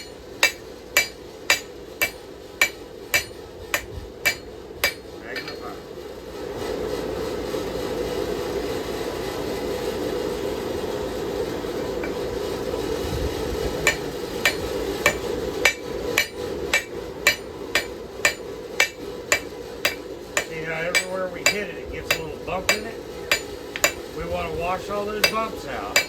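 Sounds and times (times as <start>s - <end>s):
hammer striking steel on anvil: 0.0s - 5.8s, 13.8s - 24.2s, 24.9s - 26.0s.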